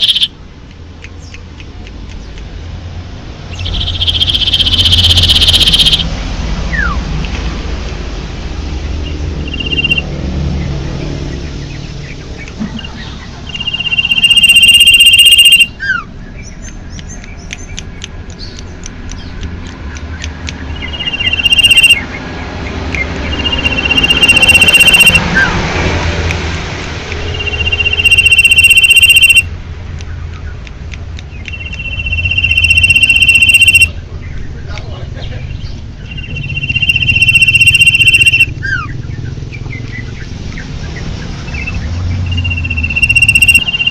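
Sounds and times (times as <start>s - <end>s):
bird harsh buzzing call: 0.0s - 0.3s, 3.6s - 6.1s, 9.4s - 10.0s, 12.8s - 15.8s, 20.8s - 22.1s, 23.3s - 25.2s, 27.2s - 29.4s, 31.7s - 33.9s, 36.1s - 38.8s, 42.3s - 43.9s
bird chirps and clicks: 0.0s - 6.1s, 6.7s - 8.0s, 9.0s - 25.6s, 26.2s - 43.9s.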